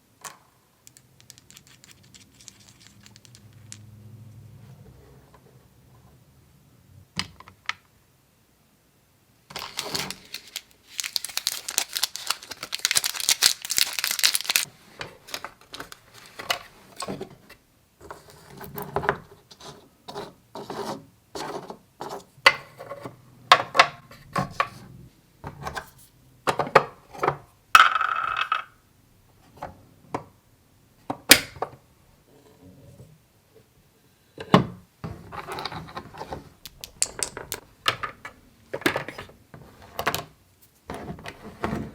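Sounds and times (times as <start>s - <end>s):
plastic toy pieces clicking: 0.8s - 3.8s, 36.6s - 37.6s
plastic crinkling: 9.5s - 16.4s.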